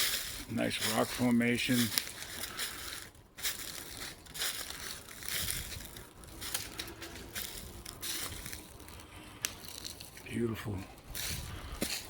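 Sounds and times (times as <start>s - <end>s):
footsteps crunching on gravel: 0.0s - 12.0s.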